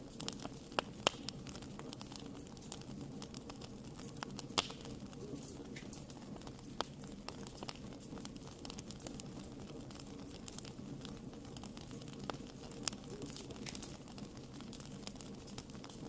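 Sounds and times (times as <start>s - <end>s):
flames rustling: 0.0s - 16.0s
wood fire snaps and pops: 0.0s - 16.0s.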